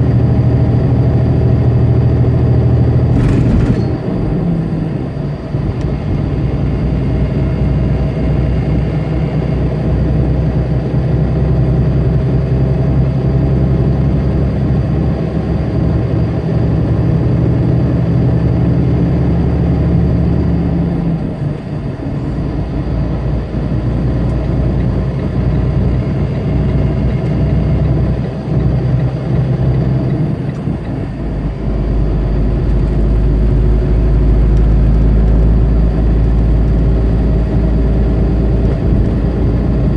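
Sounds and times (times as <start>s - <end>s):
heavy low rumble: 0.0s - 8.4s, 29.8s - 39.9s
road noise: 0.0s - 12.2s, 15.0s - 39.9s
diesel truck engine running: 0.0s - 39.9s.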